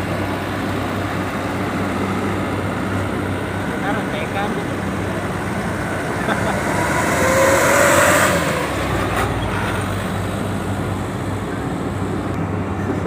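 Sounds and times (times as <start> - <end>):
low engine hum of vehicles: 0.0 - 13.0
vehicle passing: 1.6 - 12.3.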